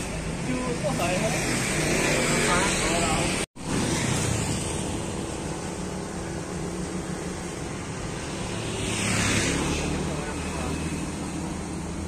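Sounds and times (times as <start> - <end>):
vehicle passing by: 7.8 - 12.0.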